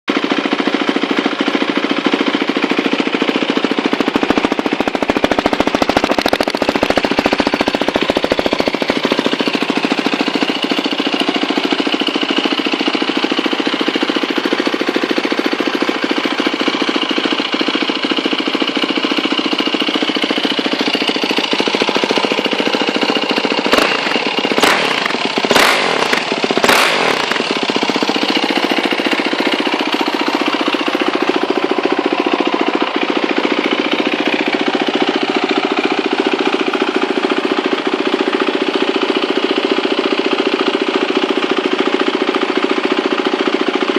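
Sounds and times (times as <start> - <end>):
motorcycle engine idling: 0.1 - 43.9.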